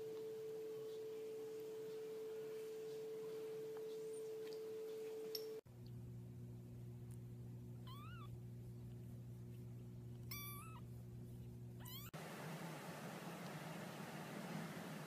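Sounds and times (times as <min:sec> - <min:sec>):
low hum: 0:00.0 - 0:15.0
cat meowing: 0:07.8 - 0:08.3, 0:10.3 - 0:10.8, 0:11.8 - 0:12.2.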